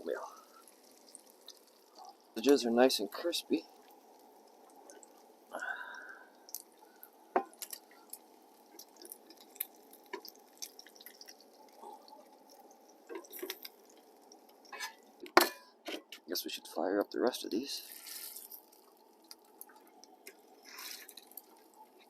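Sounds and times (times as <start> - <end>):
food sizzling in a pan: 0.0 - 15.2, 17.7 - 22.0
pops and crackles: 6.5 - 15.4, 18.0 - 22.0.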